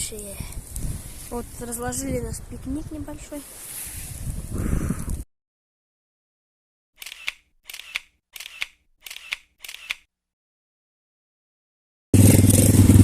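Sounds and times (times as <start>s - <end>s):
camera shutter clicking: 7.0s - 10.1s.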